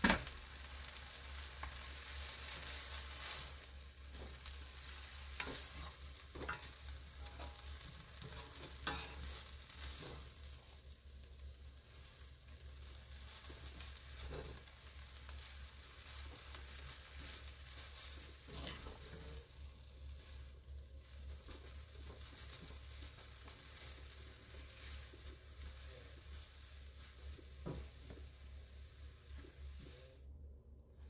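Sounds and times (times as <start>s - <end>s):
greens sizzling in a frying pan: 0.0s - 30.2s
utensil scraping pan: 3.4s - 10.5s, 16.4s - 19.5s.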